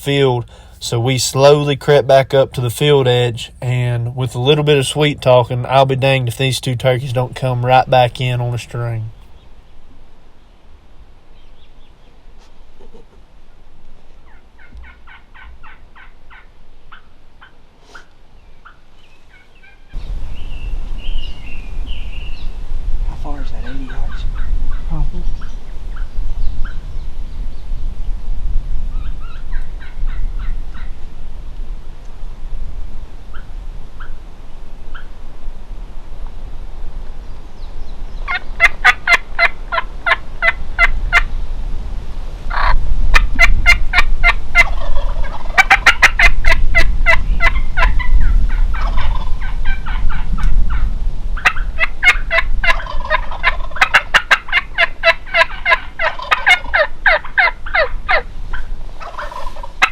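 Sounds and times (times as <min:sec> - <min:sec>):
turkeys gobbling: 0:14.2 - 0:19.9, 0:29.2 - 0:31.0, 0:38.2 - 0:41.3, 0:42.5 - 0:59.9.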